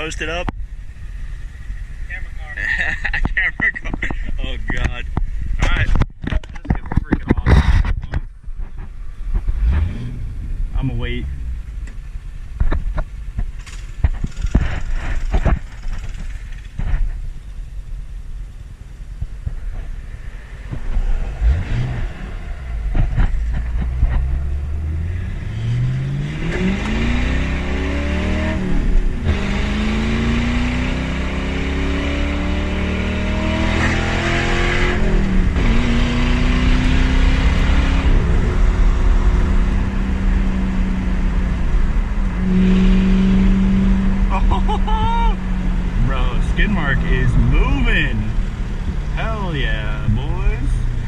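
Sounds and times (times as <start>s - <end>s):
car engine accelerating through gears: 9.3s - 12.0s, 19.5s - 51.0s.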